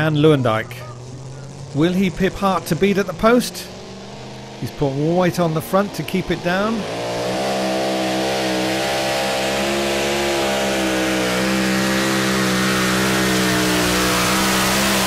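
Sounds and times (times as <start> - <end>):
tractor engine at full throttle: 0.0 - 15.0.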